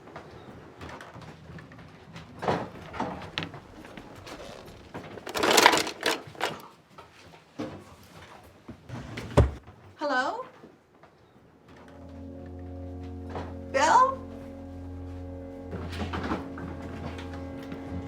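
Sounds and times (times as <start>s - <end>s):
handling knocks and rustling: 4.3s - 8.3s.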